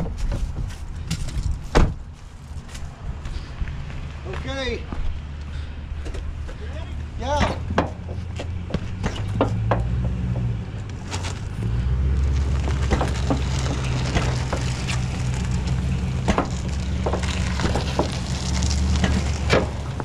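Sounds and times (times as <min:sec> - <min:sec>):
vehicle engine running: 0:04.9 - 0:20.0.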